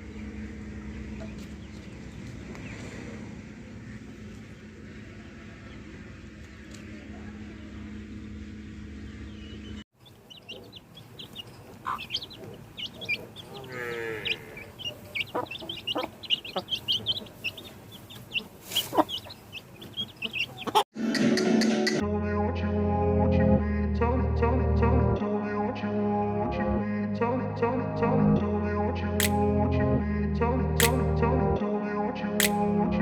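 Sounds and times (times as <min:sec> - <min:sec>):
steady low hum: 0:00.0 - 0:18.5
chickens clucking and calling: 0:09.2 - 0:20.8.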